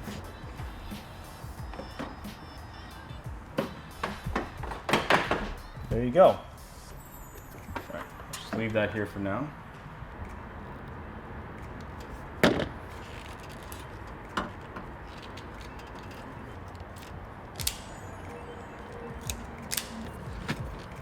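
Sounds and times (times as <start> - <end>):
clicks and knocks of handling tools: 13.1 - 17.9.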